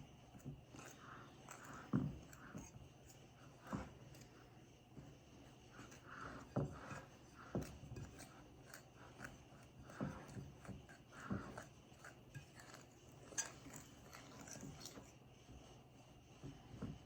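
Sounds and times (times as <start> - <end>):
fork stirring sugar and flour: 0.0 - 17.0
fork knocking against bowl: 5.8 - 15.0.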